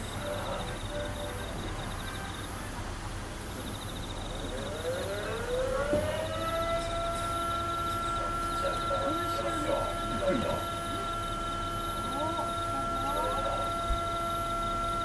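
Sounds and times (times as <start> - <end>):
faint background murmur: 0.0 - 15.0
second lower siren tone: 0.0 - 15.0
siren winding up: 3.8 - 15.0.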